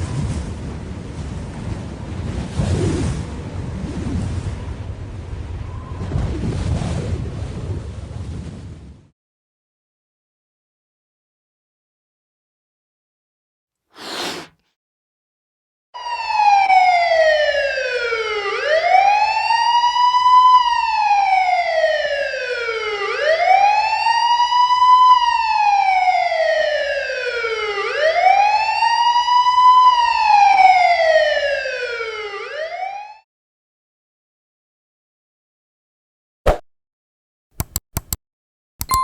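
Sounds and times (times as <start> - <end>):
short whooshing hiss: 14.0 - 14.6
siren wailing: 16.0 - 33.2.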